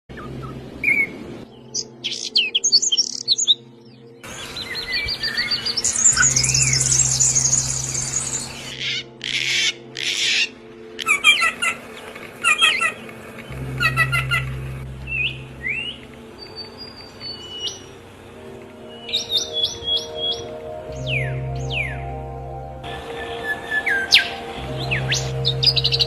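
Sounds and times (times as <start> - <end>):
bird trill: 0.1 - 18.2, 18.9 - 22.1, 22.9 - 26.0
songbirds chirping: 0.1 - 26.0
harsh bird calls: 4.2 - 18.2
low steady hum: 13.1 - 18.9.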